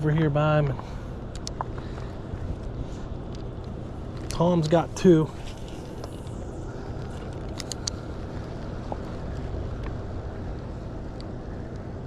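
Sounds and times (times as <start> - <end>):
faint hum: 0.0 - 12.0
low engine drone: 0.0 - 12.0.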